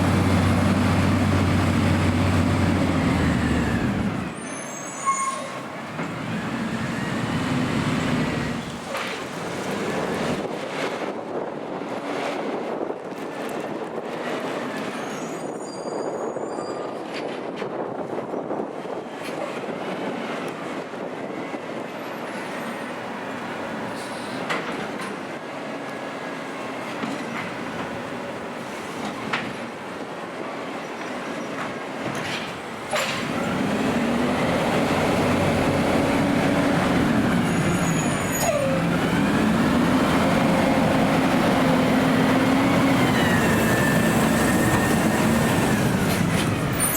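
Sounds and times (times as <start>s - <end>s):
garbage truck engine revving: 0.0s - 4.4s, 6.1s - 8.9s, 33.1s - 46.8s
wind on microphone: 9.7s - 21.9s.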